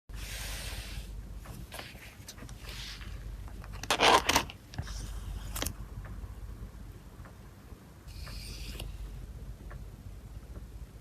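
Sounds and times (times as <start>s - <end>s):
plastic sleeves rustling and crinkling: 1.5s - 5.7s
plastic tearing: 3.8s - 4.6s.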